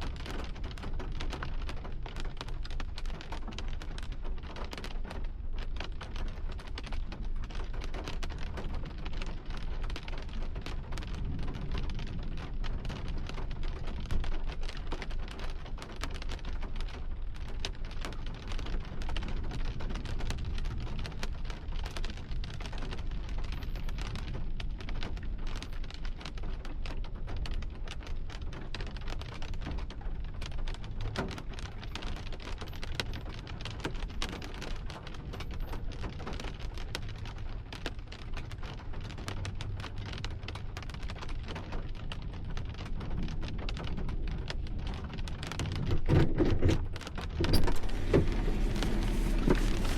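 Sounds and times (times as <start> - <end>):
heavy rain on hard surface: 0.0 - 49.9
low thunder rumble: 43.0 - 49.9.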